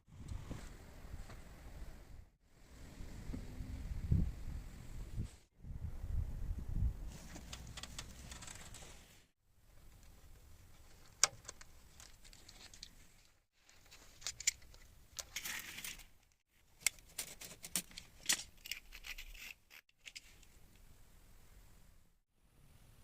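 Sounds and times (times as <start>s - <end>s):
hand tool scraping: 18.6s - 20.4s.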